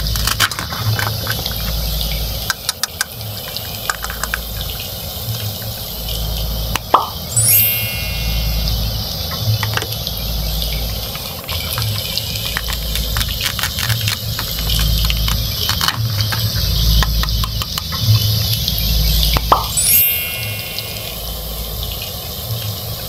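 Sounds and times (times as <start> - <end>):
plastic toy food clicking and crackling: 0.0 - 5.5, 11.1 - 18.7
low uneven rumble: 0.0 - 7.4, 8.0 - 19.8.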